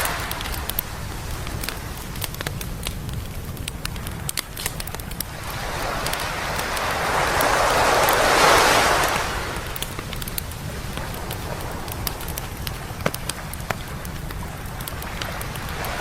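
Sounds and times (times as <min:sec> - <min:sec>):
sea wave breaking on beach: 0:00.0 - 0:01.8, 0:05.2 - 0:13.9, 0:15.0 - 0:16.0
campfire crackling and popping: 0:00.0 - 0:16.0.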